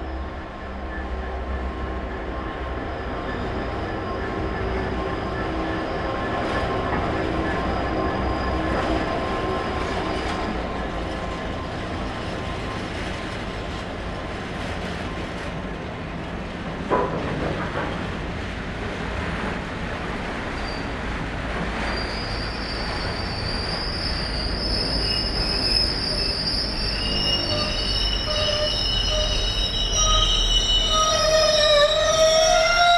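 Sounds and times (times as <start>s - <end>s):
high wheel squeal: 0.0s - 13.2s, 20.6s - 21.0s, 21.8s - 32.9s
freight train wagons rumbling: 0.0s - 32.9s.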